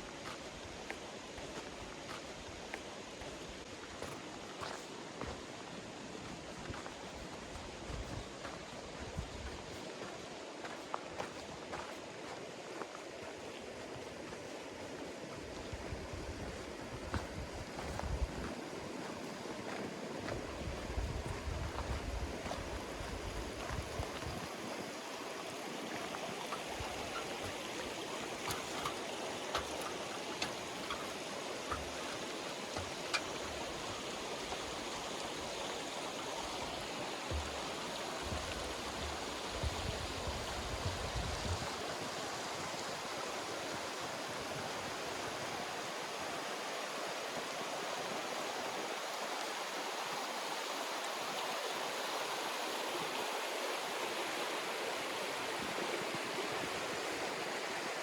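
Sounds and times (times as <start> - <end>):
river rushing: 0.0 - 58.0
footsteps on loose stones: 0.2 - 5.5, 6.2 - 13.4, 16.4 - 24.5, 25.9 - 35.8, 36.4 - 41.6.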